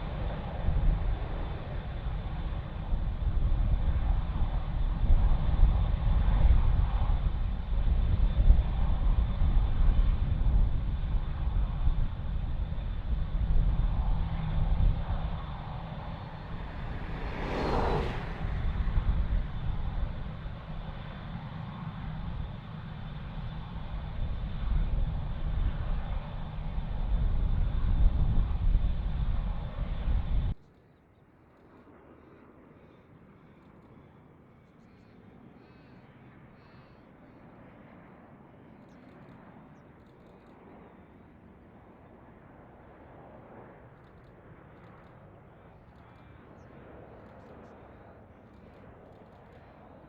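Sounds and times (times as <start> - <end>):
jet engines rumbling: 0.0 - 30.6.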